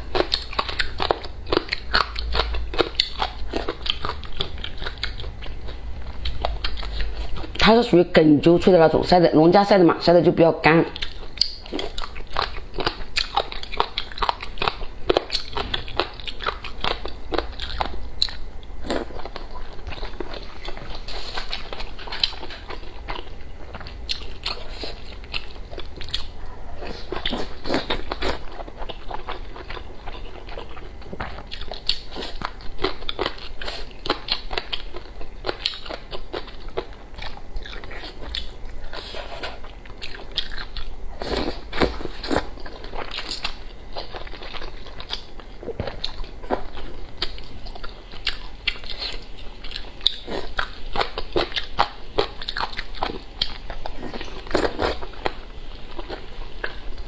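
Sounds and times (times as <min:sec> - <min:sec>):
crunching and chewing food: 0:00.0 - 0:07.8, 0:10.9 - 0:57.0.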